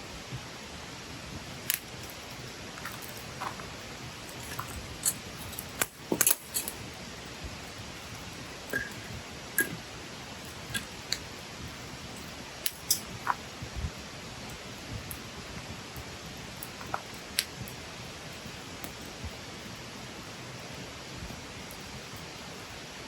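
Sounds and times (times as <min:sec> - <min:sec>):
fire soft hiss: 0:00.0 - 0:23.0
campfire crackling and popping: 0:00.3 - 0:19.7.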